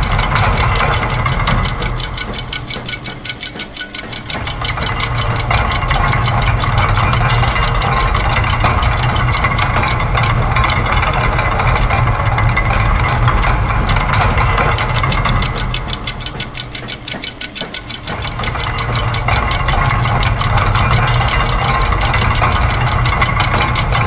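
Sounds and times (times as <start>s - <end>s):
dense machine clattering: 0.0s - 24.0s
rapid mechanical clicking: 0.0s - 24.0s.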